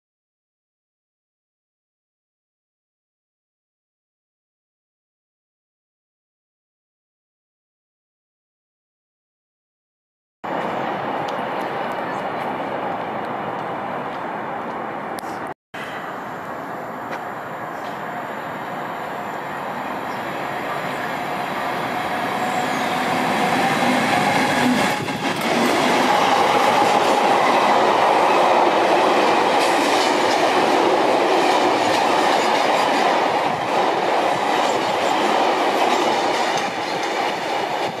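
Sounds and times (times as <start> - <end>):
locomotive approaching: 15.8 - 38.0
wheels clacking on rails: 20.0 - 38.0.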